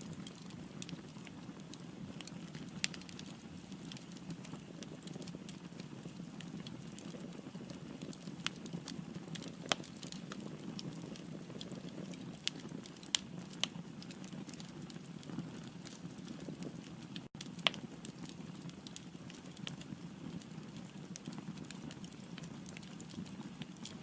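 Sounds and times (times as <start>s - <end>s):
firewood crackling and popping: 0.0s - 24.0s.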